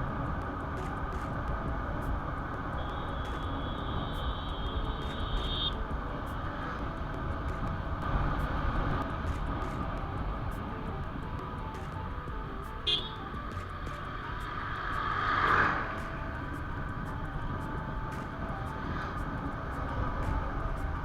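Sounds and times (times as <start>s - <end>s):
steady high-pitched tone: 0.0s - 21.0s
traffic rumble while riding motorcycle: 0.0s - 21.0s.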